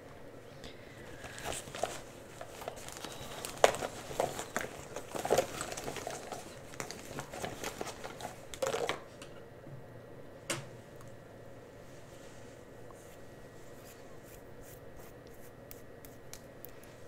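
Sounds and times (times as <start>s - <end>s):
packaging crinkling: 1.1s - 9.0s.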